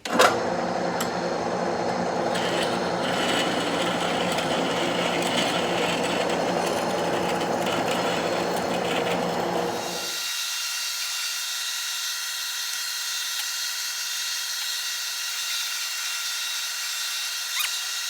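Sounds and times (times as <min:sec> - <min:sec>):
lathe motor humming: 0:00.1 - 0:10.2
drill bit cutting metal: 0:00.4 - 0:10.4.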